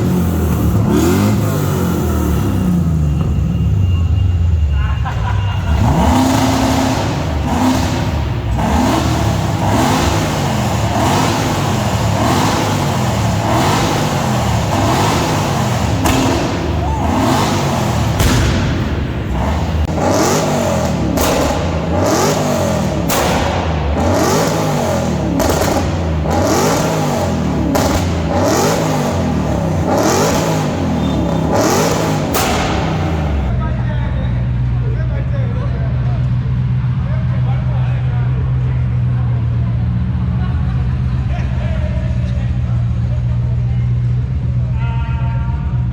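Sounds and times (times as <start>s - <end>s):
car engine revving: 0.0s - 33.6s.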